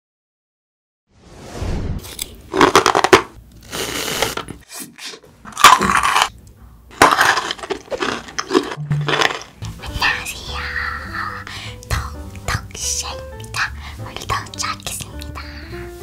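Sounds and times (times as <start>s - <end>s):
crunching chocolate balls: 5.5s - 6.3s, 6.9s - 9.8s.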